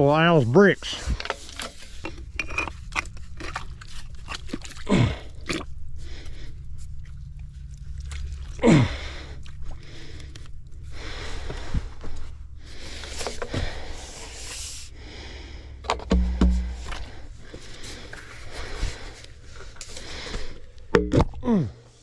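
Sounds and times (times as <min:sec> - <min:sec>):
crunching and scraping of gravel: 0:00.0 - 0:08.8
low hum: 0:00.0 - 0:22.0.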